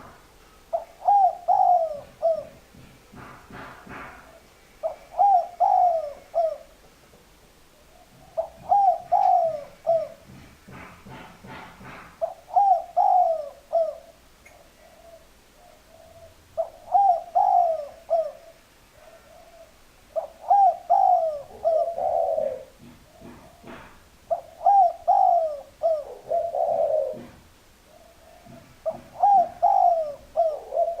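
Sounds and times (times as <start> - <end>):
dove cooing: 0.0 - 6.8, 7.8 - 31.0.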